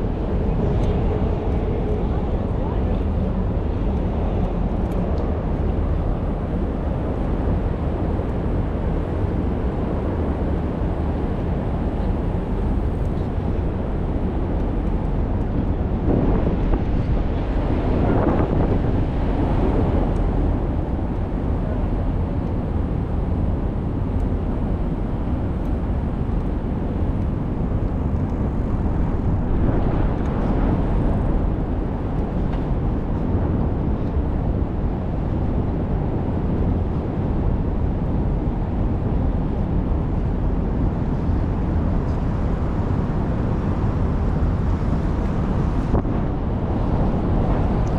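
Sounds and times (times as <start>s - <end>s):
street traffic: 0.0s - 18.7s
wind rumble on microphone: 0.0s - 47.9s.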